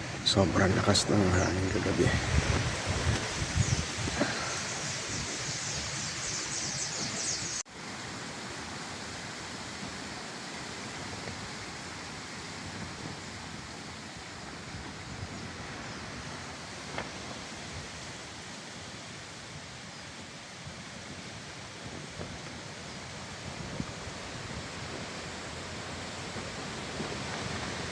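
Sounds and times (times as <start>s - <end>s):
strong wind blowing: 0.0s - 7.6s.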